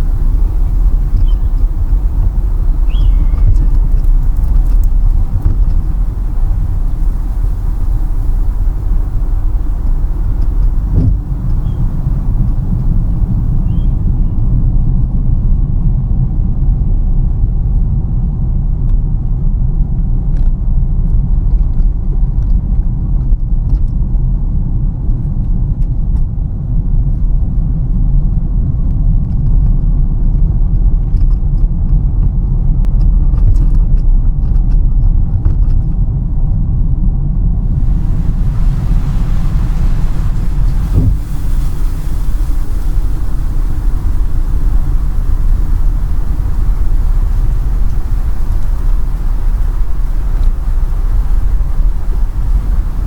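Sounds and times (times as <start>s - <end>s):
faint ticks: 0.0s - 14.3s
high hiss: 0.0s - 14.5s, 37.6s - 53.0s
car road rumble: 0.0s - 14.6s, 37.6s - 53.0s.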